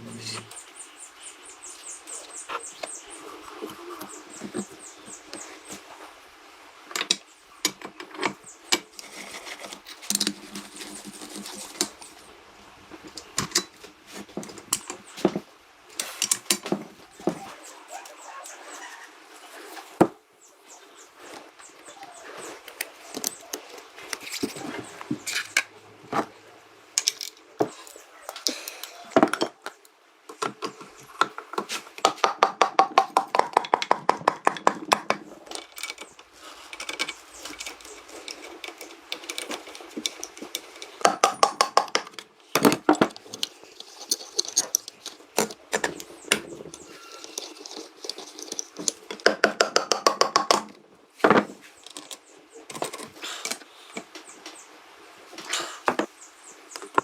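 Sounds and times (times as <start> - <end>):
hand tools tapping on metal: 28.4 - 50.8.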